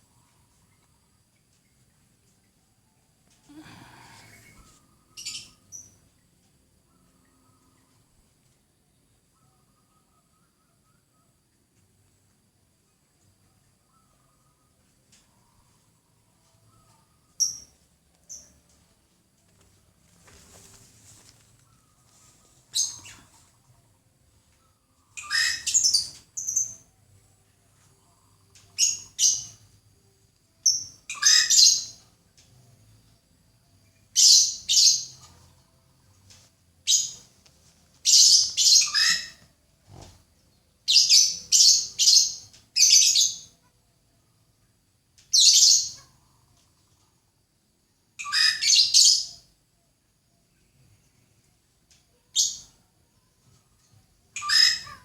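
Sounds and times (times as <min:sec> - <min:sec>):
songbird chirping: 0:00.0 - 0:55.0.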